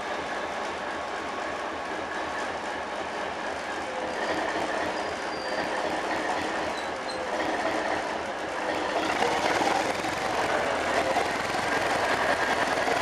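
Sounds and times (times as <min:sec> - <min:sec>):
train wheels rumbling on rails: 0:00.0 - 0:13.0
faint wheel squeals: 0:04.0 - 0:05.9, 0:06.7 - 0:07.3.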